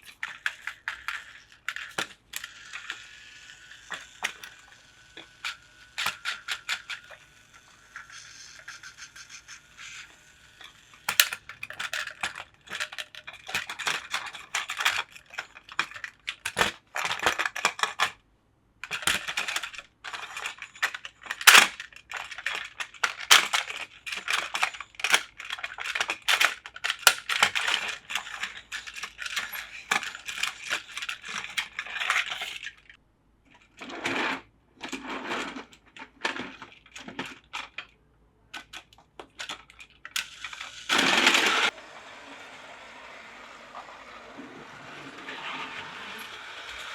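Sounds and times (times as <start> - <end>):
plastic toy parts clattering: 0.0 - 18.2, 18.8 - 41.8, 43.5 - 46.9.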